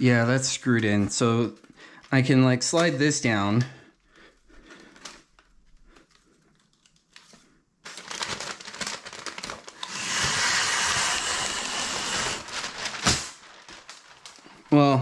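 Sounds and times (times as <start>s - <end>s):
handling noise with rustling: 12.4s - 14.7s.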